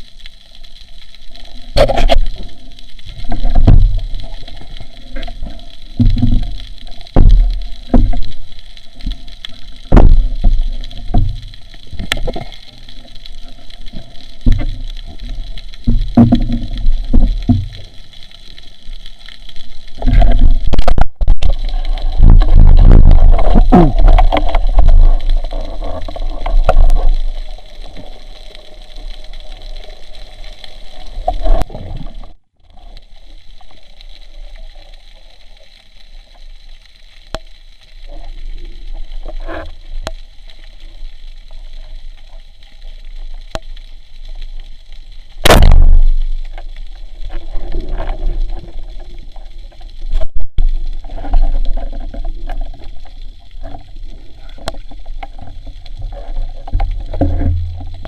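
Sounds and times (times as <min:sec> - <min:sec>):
water sloshing and gurgling underwater: 0:00.0 - 0:58.0
low rumble: 0:20.2 - 0:27.9.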